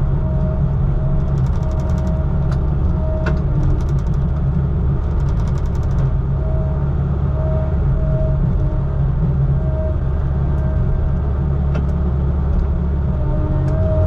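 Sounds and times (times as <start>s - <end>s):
vehicle engine drone: 0.0s - 14.0s
rapid high ticks: 5.1s - 6.1s.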